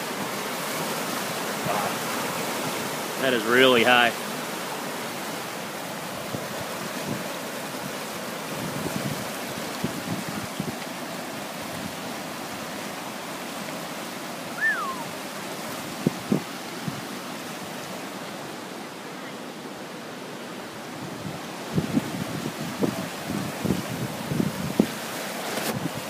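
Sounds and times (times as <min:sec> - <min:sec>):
rushing brook water: 0:00.0 - 0:26.0
falling chirp: 0:14.6 - 0:15.1.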